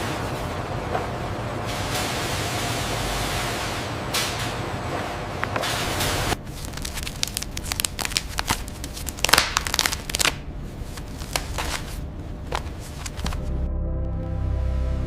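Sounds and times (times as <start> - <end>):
low steady hum: 0.0 - 15.0
dry crackling and clicking: 6.3 - 13.4
background music: 13.3 - 15.0.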